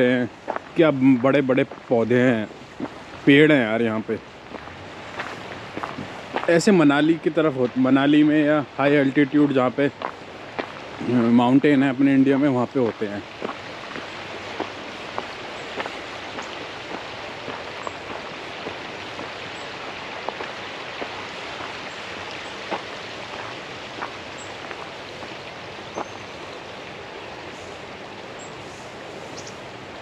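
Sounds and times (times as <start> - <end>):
sharp water drips: 0.0 - 29.6
falling water patter: 0.0 - 30.0.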